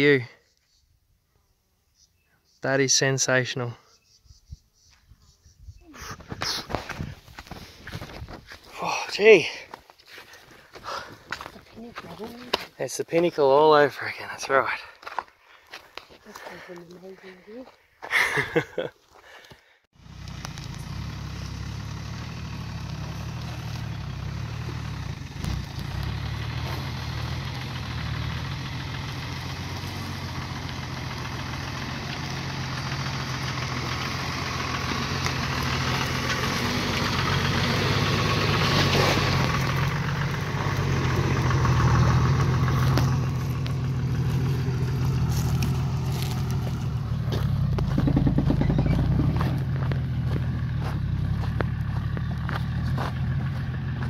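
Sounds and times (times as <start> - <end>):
vehicle engine running at low revs: 20.0 - 54.0.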